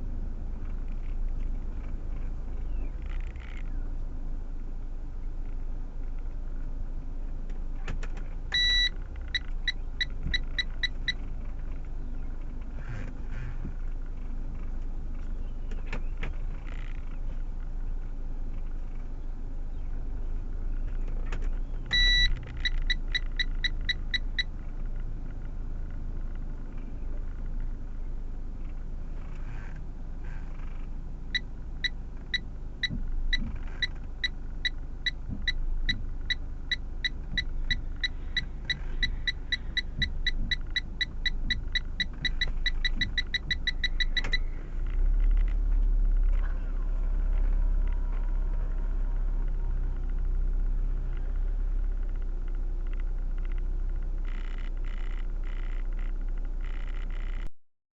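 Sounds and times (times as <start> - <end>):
car interior rumble: 0.0 - 57.6
electronic warning beeps: 8.5 - 11.2, 21.9 - 24.5, 31.3 - 44.5.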